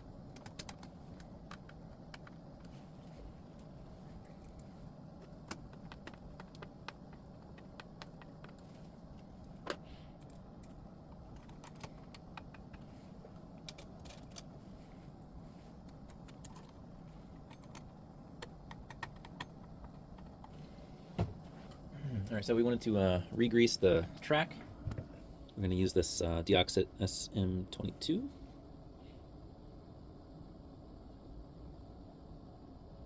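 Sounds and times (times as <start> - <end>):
faint steady hum: 0.0 - 33.0
small clicks and metallic taps: 4.4 - 14.5, 17.4 - 20.6.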